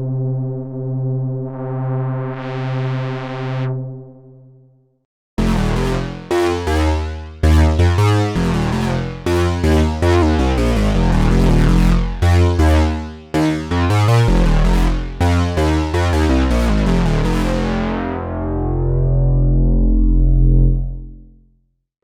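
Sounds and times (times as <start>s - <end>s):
synthesizer chords and bass notes: 1.3s - 4.1s, 5.4s - 21.3s.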